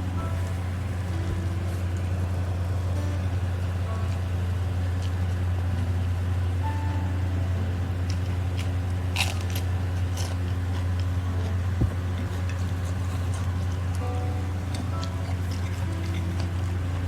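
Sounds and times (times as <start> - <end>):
steady low hum: 0.0 - 17.0
person chewing crunchy food: 8.0 - 17.0.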